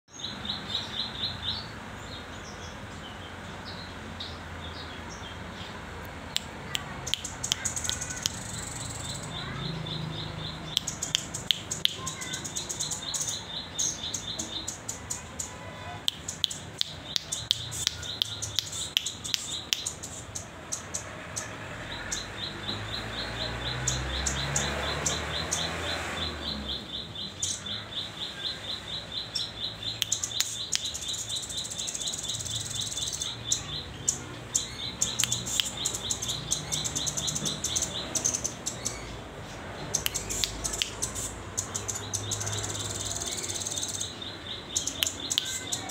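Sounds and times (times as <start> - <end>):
sharp bird chips: 6.1 - 45.9
bird calling in rapid high ticks: 6.3 - 9.4, 10.7 - 13.4, 14.1 - 21.5, 29.9 - 39.0, 39.9 - 44.2, 44.8 - 45.9.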